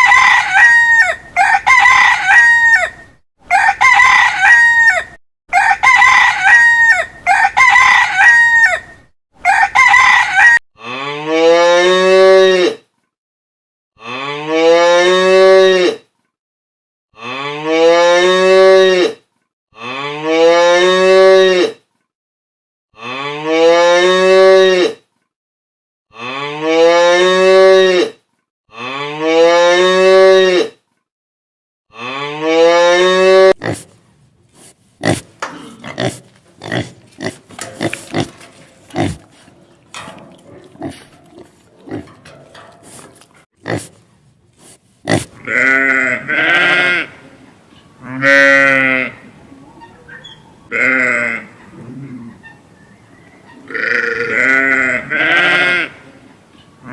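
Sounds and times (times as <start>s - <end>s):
rooster crowing: 0.0s - 10.6s
cow mooing: 35.0s - 43.9s.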